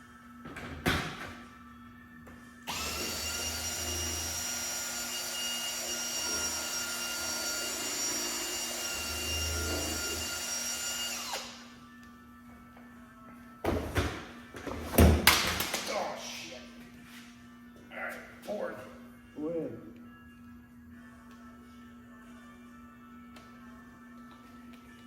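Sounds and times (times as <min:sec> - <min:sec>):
electric drill mixing: 0:02.7 - 0:11.8.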